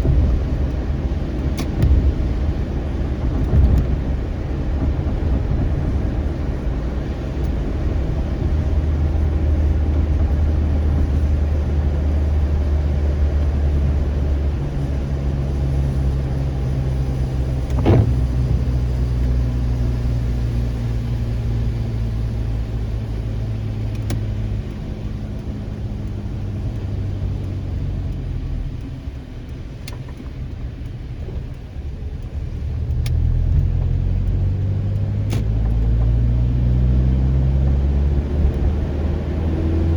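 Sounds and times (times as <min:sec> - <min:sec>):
car engine and road rumble: 0:00.0 - 0:39.9
faint ticks: 0:25.4 - 0:36.2
sharp click: 0:35.0 - 0:35.8.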